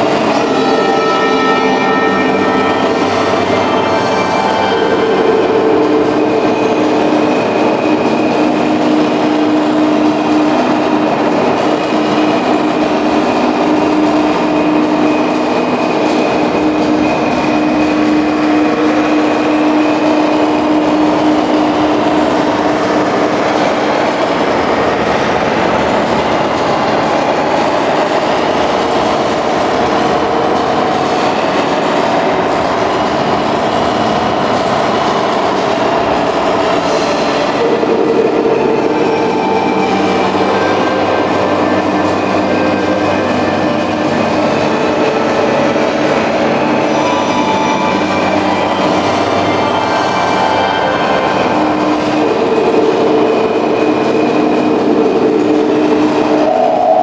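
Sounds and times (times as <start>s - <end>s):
held tone: 0.0s - 24.5s, 36.5s - 57.0s.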